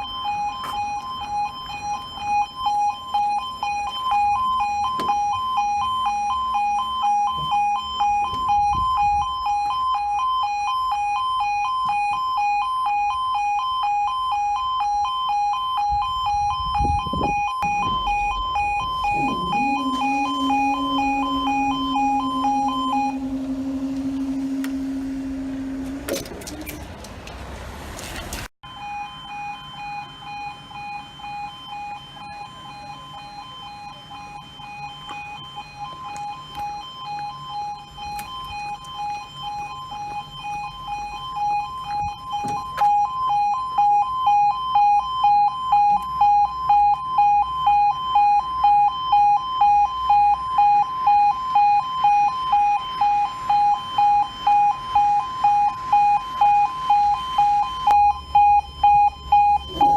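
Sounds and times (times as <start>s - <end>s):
level crossing alarm two-tone yodel: 0.0s - 26.2s, 28.6s - 59.9s
steady low drone: 17.6s - 26.5s.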